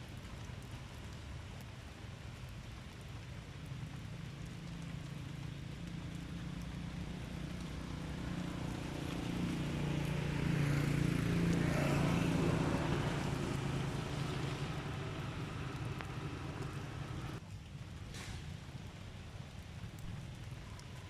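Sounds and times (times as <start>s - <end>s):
vehicle engine passing by: 5.8s - 17.4s.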